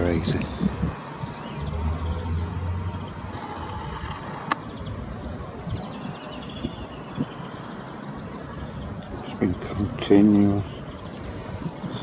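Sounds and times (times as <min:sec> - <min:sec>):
low engine rumble: 0:00.0 - 0:05.2.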